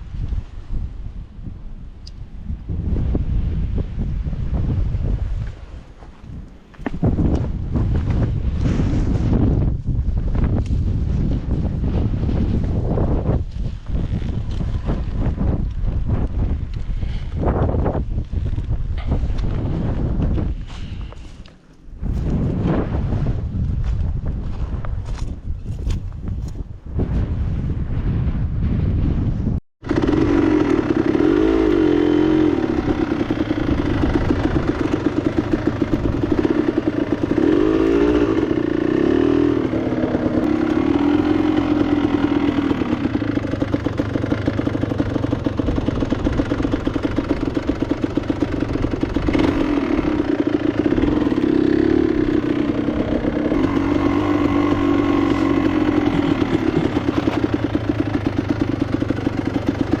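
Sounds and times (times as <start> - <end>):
motorcycle engine revving: 29.8 - 60.0.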